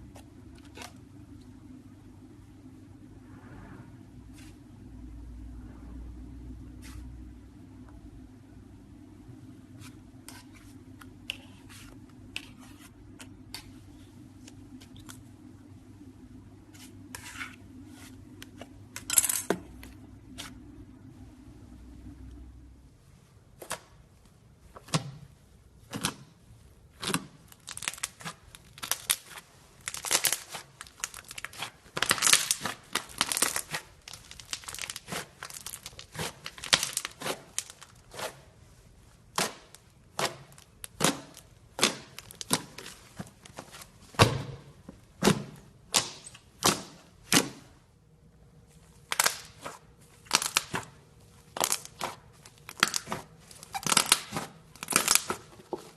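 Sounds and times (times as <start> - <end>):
slime crackling and popping: 27.0 - 38.2, 39.3 - 43.4, 49.0 - 55.5.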